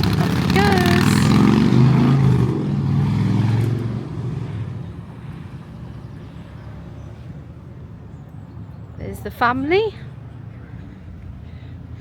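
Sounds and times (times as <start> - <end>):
vehicle engine moving off: 0.0 - 6.2.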